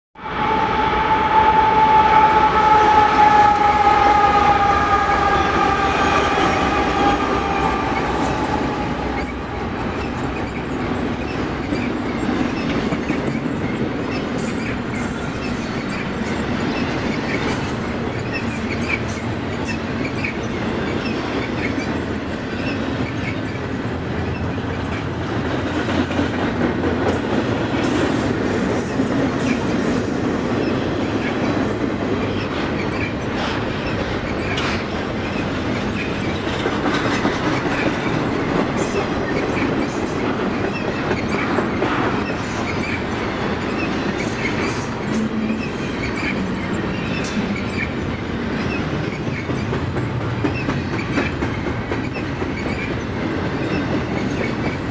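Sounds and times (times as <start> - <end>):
long high-pitched tone: 0.2 - 10.4
freight train rumbling and clattering: 1.3 - 54.9.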